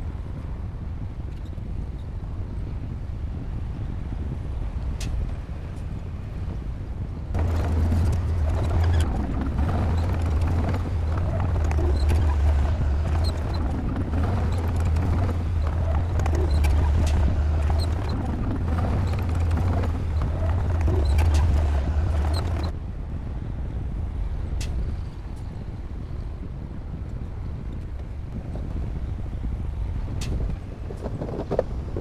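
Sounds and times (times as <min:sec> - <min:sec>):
bulldozer diesel engine droning: 0:07.4 - 0:22.7.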